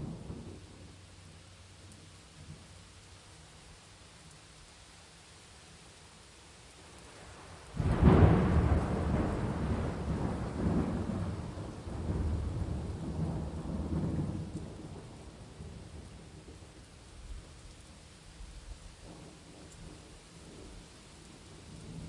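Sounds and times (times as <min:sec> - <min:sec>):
rain falling: 0:00.0 - 0:22.0
thunder rumbling: 0:07.8 - 0:17.5.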